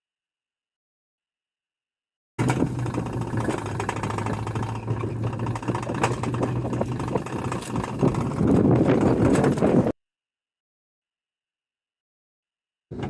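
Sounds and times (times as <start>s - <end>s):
vehicle engine humming: 2.4s - 10.0s.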